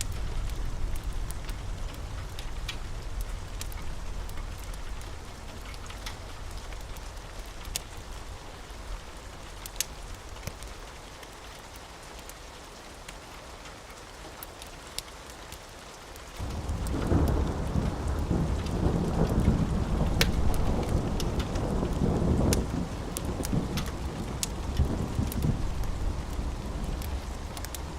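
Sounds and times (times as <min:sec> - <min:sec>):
thunder rumbling: 0:00.0 - 0:09.1, 0:16.4 - 0:27.9
fire crackling: 0:00.0 - 0:12.4, 0:16.2 - 0:27.9
steady rain: 0:00.0 - 0:27.9.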